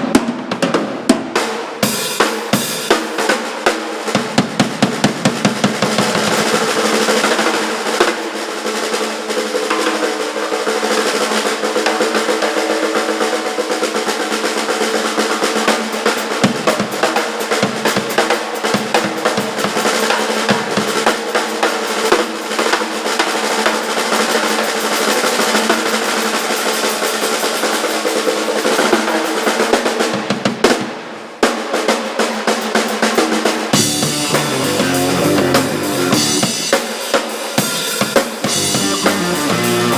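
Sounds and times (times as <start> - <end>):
snare drum rolls: 0.0 - 39.9
rock band playing: 33.7 - 39.9.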